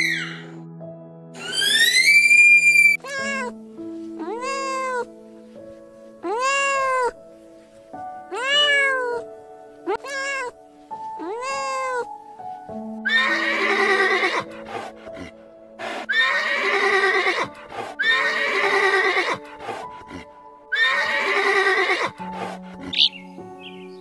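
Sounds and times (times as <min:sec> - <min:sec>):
horse whinnying: 0:00.0 - 0:00.4, 0:01.4 - 0:03.5, 0:13.0 - 0:23.2
piano music: 0:00.0 - 0:24.0.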